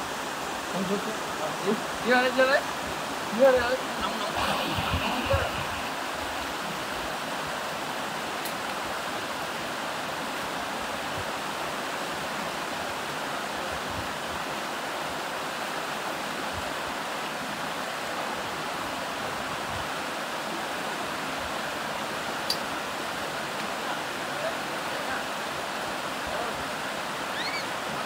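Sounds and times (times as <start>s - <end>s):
stream rushing over rocks: 0.0s - 28.0s.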